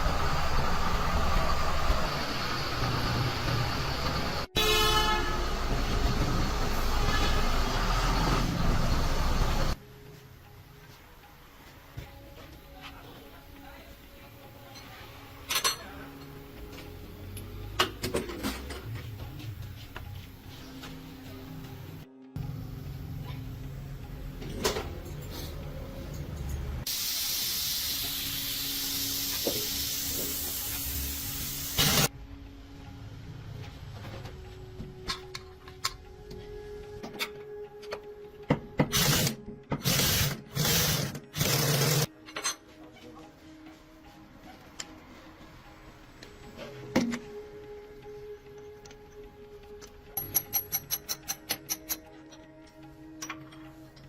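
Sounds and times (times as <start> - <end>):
metallic clicks and clatter: 50.2 - 52.5.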